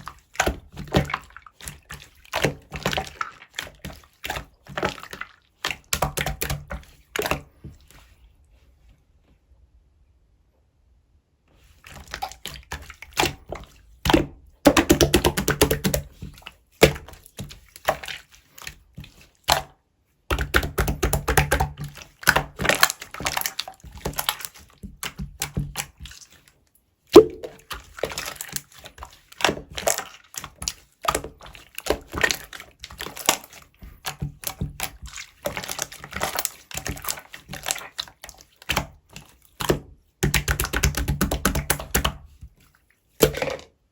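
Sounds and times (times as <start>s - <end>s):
sharp slime pop: 27.2s - 27.6s.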